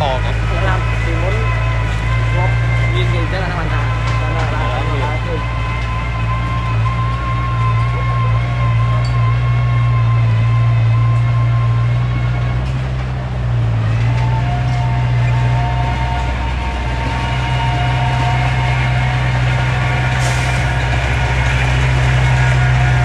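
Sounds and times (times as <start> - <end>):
diesel engine drone: 0.0 - 23.0
high whine: 0.0 - 23.0.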